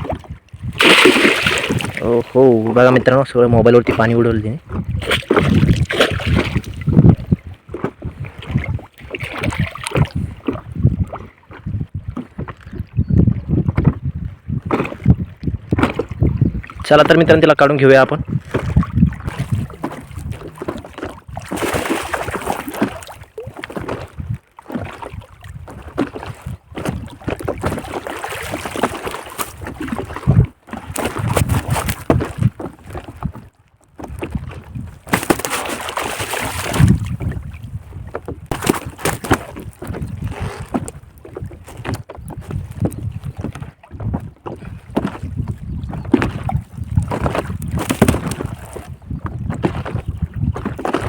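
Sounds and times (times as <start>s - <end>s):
water splashing and sloshing: 0.0s - 51.0s
knocks and rustles of net handling: 30.9s - 32.5s, 35.0s - 37.2s, 38.5s - 40.0s, 47.1s - 48.8s.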